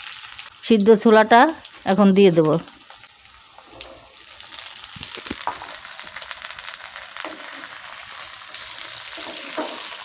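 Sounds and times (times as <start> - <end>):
food sizzling in hot oil: 0.0 - 10.0
spatula stirring: 9.0 - 10.0.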